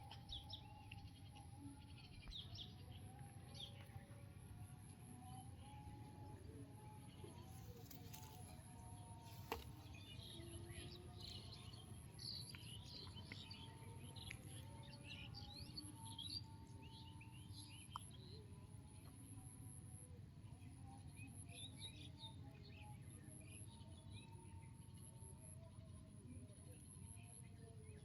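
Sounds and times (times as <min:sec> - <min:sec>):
small birds chirping: 0:09.2 - 0:18.4.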